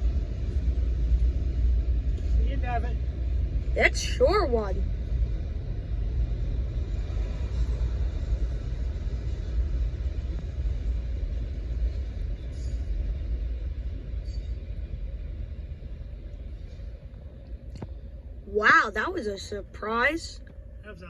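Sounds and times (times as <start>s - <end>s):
freight train rumbling: 0.0s - 21.0s.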